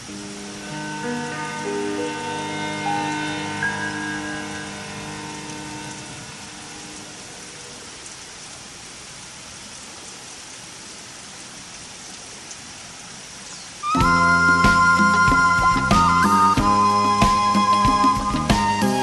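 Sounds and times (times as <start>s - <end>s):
steady hiss: 0.0s - 19.0s
loud music with held tones: 13.9s - 19.0s.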